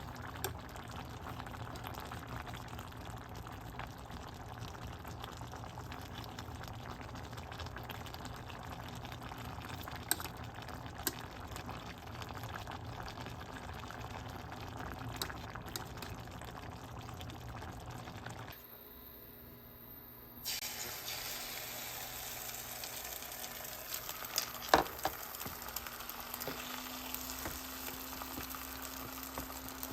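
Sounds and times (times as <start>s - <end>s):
liquid simmering and bubbling: 0.0s - 18.6s, 20.5s - 29.9s.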